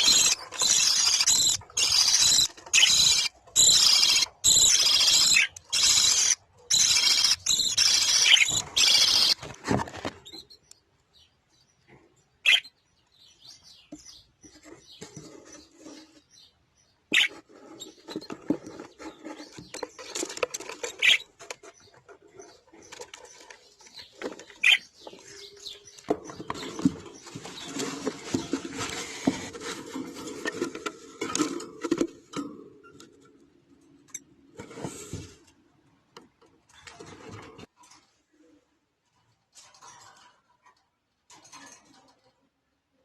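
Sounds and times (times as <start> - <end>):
budgerigars chirping: 0.0 - 9.4, 12.4 - 12.7, 17.1 - 17.4, 19.2 - 27.8.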